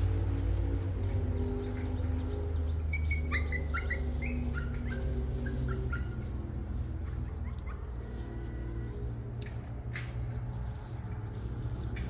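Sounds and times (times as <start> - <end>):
bird chirping: 1.0 - 6.3.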